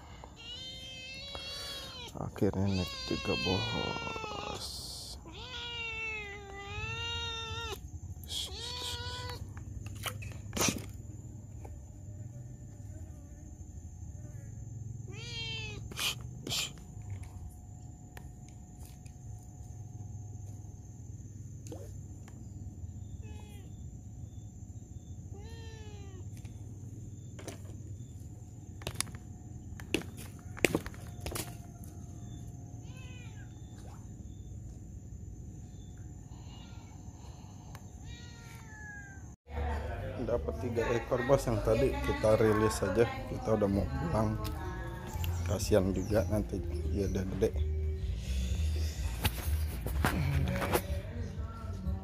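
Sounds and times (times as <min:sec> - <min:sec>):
cat meowing: 0:00.3 - 0:09.4, 0:15.1 - 0:15.9, 0:23.2 - 0:23.7, 0:25.3 - 0:26.4, 0:32.8 - 0:33.6, 0:38.1 - 0:39.4.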